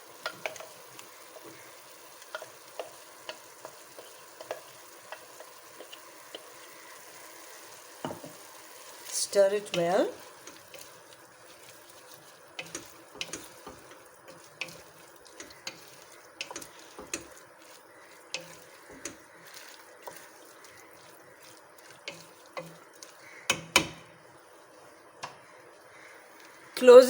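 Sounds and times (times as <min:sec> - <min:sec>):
faint sizzle: 0:00.0 - 0:27.0
spoon knocking on pot: 0:08.0 - 0:08.4, 0:23.4 - 0:24.0
spoon scraping a pot: 0:12.6 - 0:23.3.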